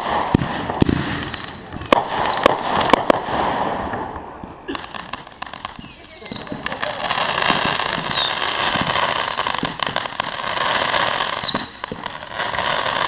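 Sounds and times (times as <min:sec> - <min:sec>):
firework bangs: 0:00.0 - 0:13.0
firework crackling: 0:00.0 - 0:13.0
firework whistles falling in pitch: 0:01.0 - 0:02.5, 0:07.6 - 0:09.5, 0:10.8 - 0:11.9.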